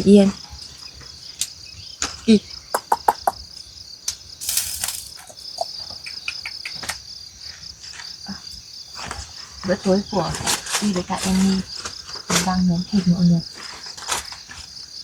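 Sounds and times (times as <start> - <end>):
crickets chirring: 0.0 - 15.0
short hiss: 4.4 - 5.4.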